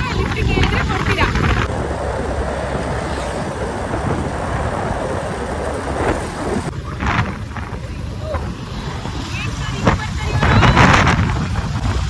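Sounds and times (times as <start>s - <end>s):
motorbike engine and road noise: 0.0s - 12.0s
wind rushing over microphone: 0.0s - 12.0s.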